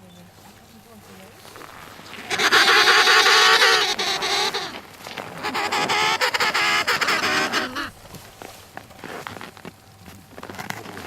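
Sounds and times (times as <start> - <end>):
loud animal calls: 1.3 - 8.3.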